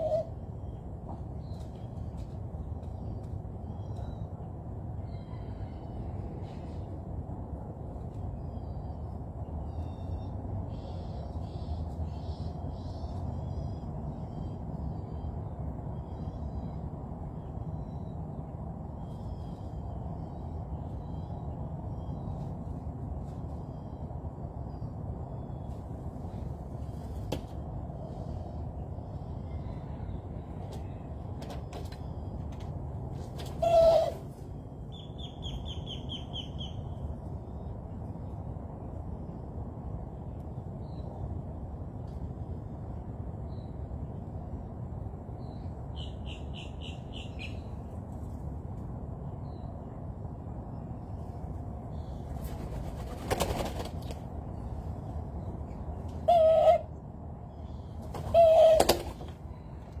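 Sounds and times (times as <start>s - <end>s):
low outdoor background: 0.0s - 60.0s
wingbeats flurry: 52.4s - 54.3s.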